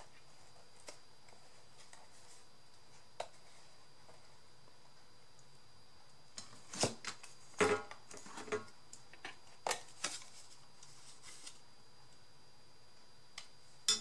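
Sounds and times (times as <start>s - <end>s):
paper crinkling: 9.5s - 11.6s.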